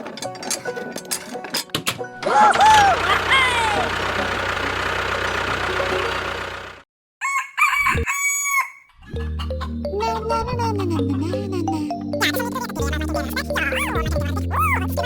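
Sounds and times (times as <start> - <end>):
music: 0.0 - 2.7, 9.2 - 15.0
rooster crowing: 7.2 - 8.9.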